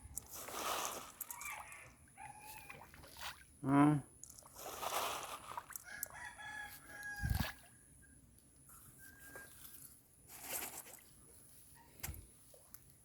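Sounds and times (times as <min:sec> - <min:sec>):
rooster crowing: 0:05.9 - 0:07.4.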